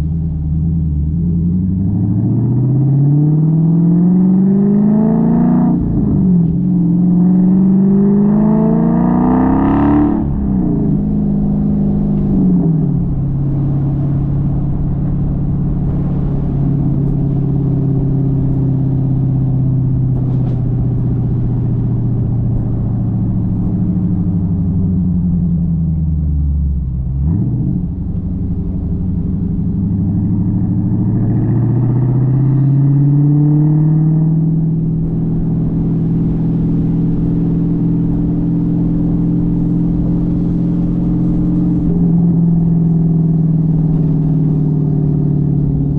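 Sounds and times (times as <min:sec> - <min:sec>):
car exhaust while driving: 0:00.0 - 0:45.9.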